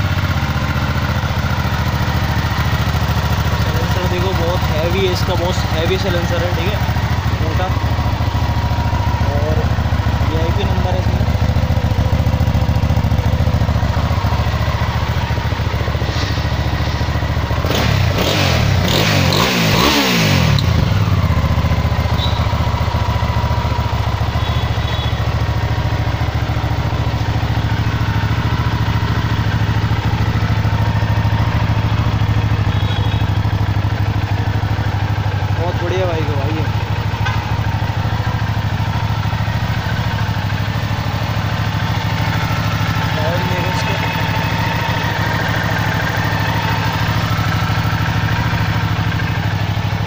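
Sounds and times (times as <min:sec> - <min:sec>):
motorcycle engine idling and revving: 0:00.0 - 0:50.0.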